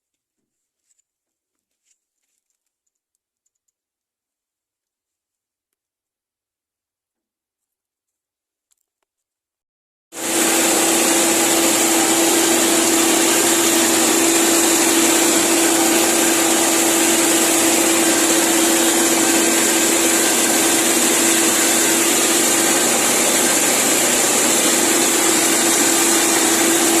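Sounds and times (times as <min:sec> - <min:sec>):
crop sprayer humming: 0:10.2 - 0:27.0
spray hissing: 0:10.2 - 0:27.0.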